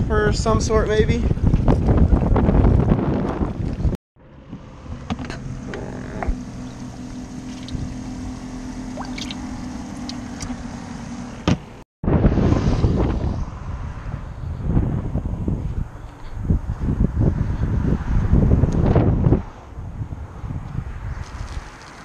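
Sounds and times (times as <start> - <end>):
wind buffeting microphone: 0.0 - 4.0, 6.1 - 10.5, 12.0 - 22.0
steady low hum: 5.5 - 11.4.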